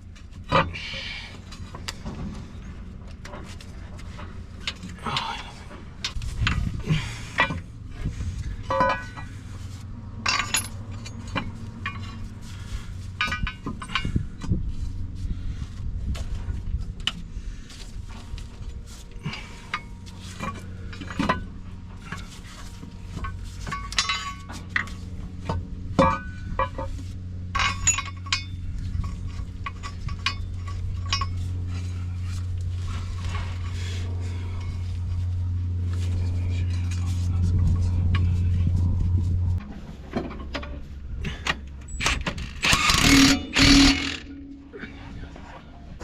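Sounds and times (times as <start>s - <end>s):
steady low hum: 0.0s - 46.0s
metal tools clinking: 8.6s - 9.4s, 10.2s - 14.3s, 19.2s - 25.0s, 26.0s - 32.3s, 40.2s - 45.5s.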